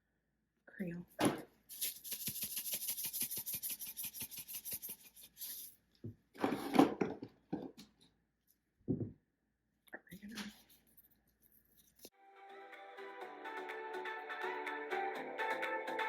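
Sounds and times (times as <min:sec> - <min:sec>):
spice shaker rattling: 0:01.7 - 0:05.7.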